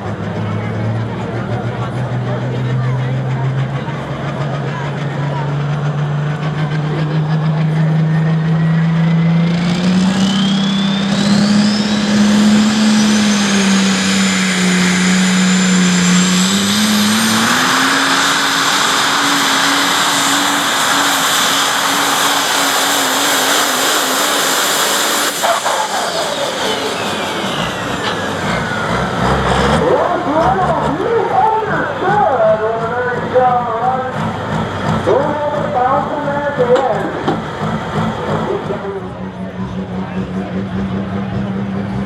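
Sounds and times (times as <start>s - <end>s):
engine at full throttle: 0.0s - 42.0s
turbo whine: 6.6s - 32.4s.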